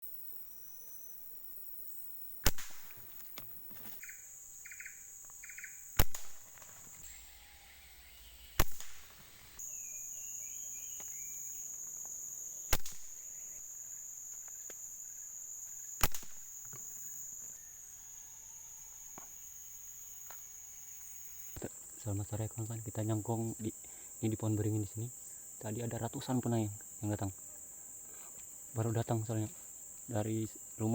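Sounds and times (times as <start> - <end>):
insects buzzing: 0.0 - 30.9
air rifle shots: 2.4 - 3.1, 6.0 - 6.7, 8.6 - 9.2, 12.7 - 13.2, 16.0 - 16.5.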